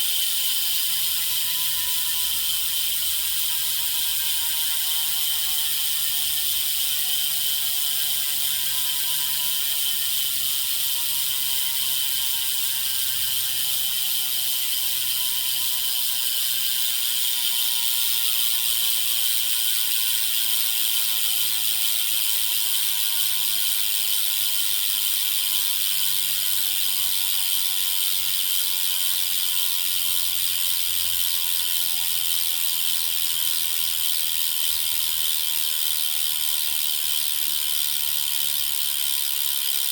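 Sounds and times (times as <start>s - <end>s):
bicycle hub freewheeling buzz: 0.0s - 39.9s.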